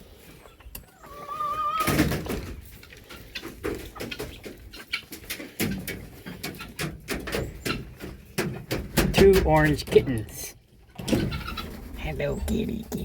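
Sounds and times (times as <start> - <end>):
chickens clucking: 0.0 - 13.0
rustling and knocking from handling: 5.2 - 10.2.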